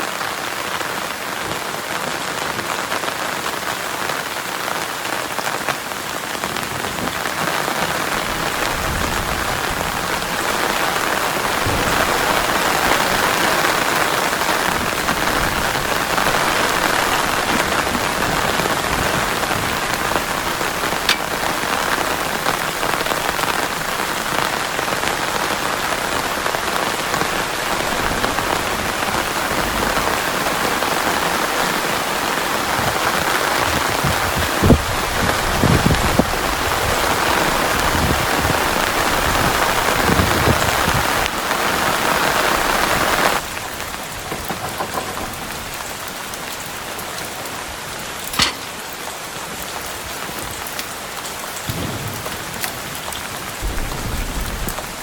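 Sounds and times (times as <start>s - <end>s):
heavy rain falling: 0.0s - 55.0s
sharp click: 48.3s - 49.0s.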